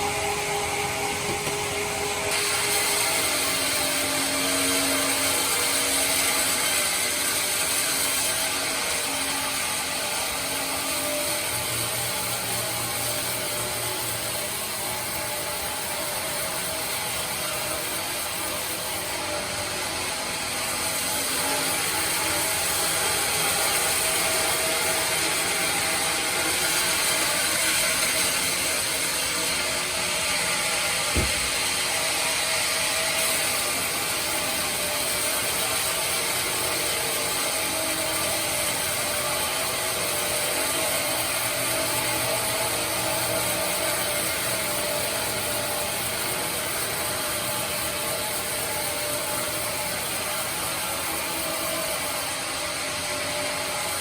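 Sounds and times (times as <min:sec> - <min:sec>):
band sawmill whirring: 0:00.0 - 0:17.4, 0:18.5 - 0:38.3
short knock: 0:31.1 - 0:31.6.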